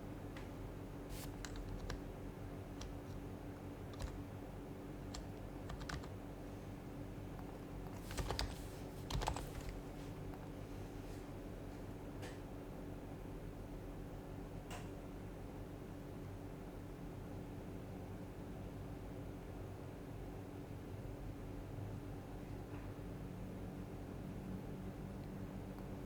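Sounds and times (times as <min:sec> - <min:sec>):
soft muted keyboard typing: 0:01.1 - 0:04.4, 0:05.0 - 0:06.2, 0:07.3 - 0:10.6.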